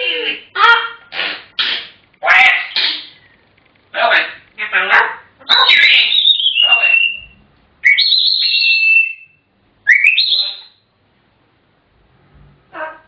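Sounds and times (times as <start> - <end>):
parrot whistling: 5.5 - 10.8.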